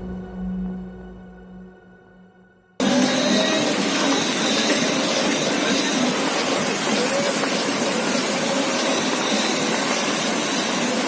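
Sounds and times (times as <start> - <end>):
fountain water jets splashing: 2.8 - 11.0.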